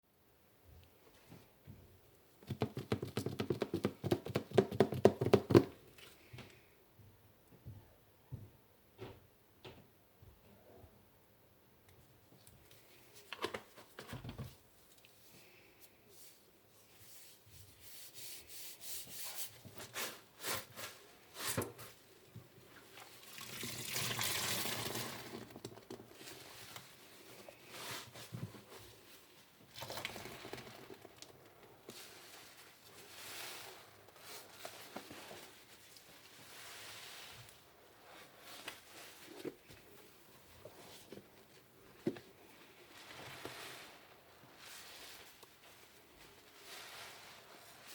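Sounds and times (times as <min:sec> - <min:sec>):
wet sponge squeezed and rubbed: 0:15.2 - 0:22.2, 0:22.8 - 0:39.8, 0:42.4 - 0:47.9
water sloshing and dripping: 0:22.8 - 0:26.0, 0:29.7 - 0:31.5.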